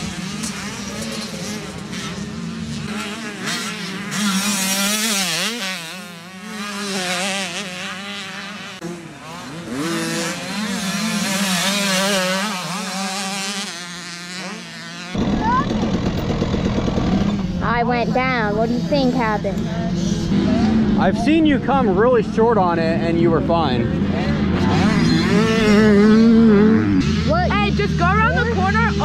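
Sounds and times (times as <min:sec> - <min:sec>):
dirt bike engines revving: 0:00.0 - 0:29.0
low engine drone: 0:15.2 - 0:29.0.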